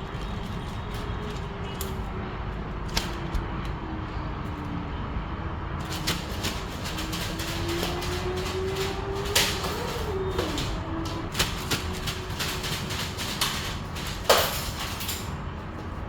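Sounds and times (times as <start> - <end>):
clicks and knocks: 5.8 - 15.4.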